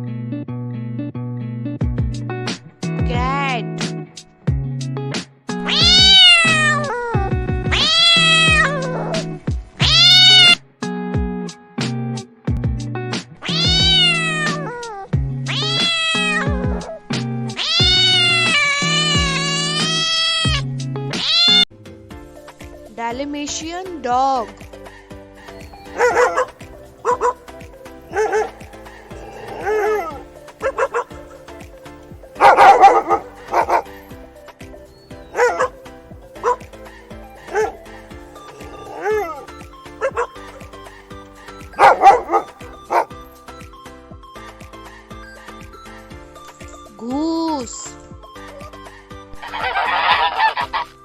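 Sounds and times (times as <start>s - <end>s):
background music with steady beat: 1.8s - 51.0s
cat meowing: 5.6s - 10.6s, 13.4s - 17.0s, 17.6s - 20.6s, 21.2s - 21.7s, 25.5s - 31.4s, 32.3s - 34.0s, 35.2s - 43.2s
dog barking: 24.9s - 31.3s, 32.4s - 34.1s, 35.2s - 43.2s, 49.4s - 50.9s.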